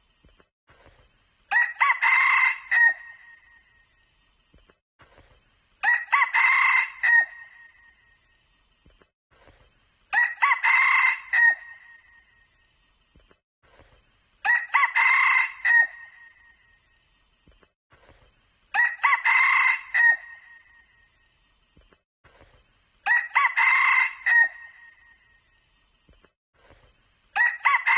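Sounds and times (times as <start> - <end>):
junglefowl crowing: 1.5 - 3.5, 5.8 - 7.8, 10.2 - 12.0, 14.5 - 16.4, 18.8 - 20.7, 23.1 - 25.0, 27.4 - 27.9.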